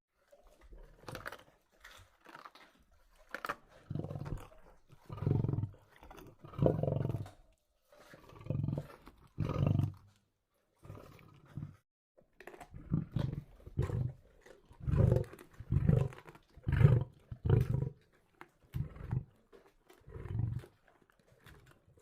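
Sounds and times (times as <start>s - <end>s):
lion roaring: 14.8s - 18.0s.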